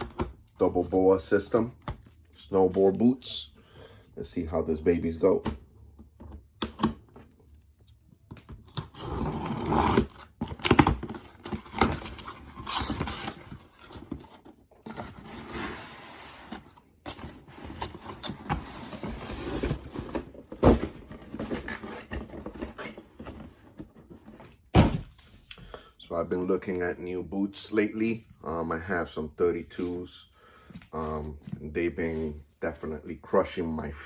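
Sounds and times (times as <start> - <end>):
packaging rustling and scraping: 8.4 - 24.7.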